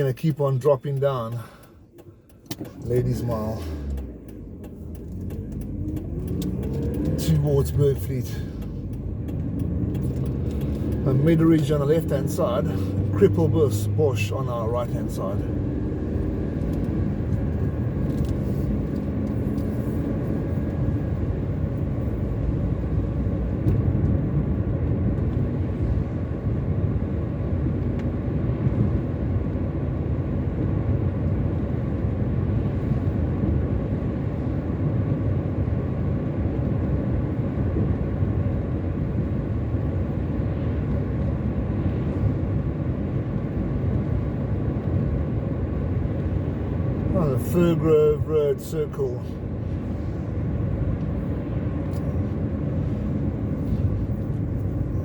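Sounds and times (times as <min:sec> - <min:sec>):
car road noise from inside: 0:00.0 - 0:55.0.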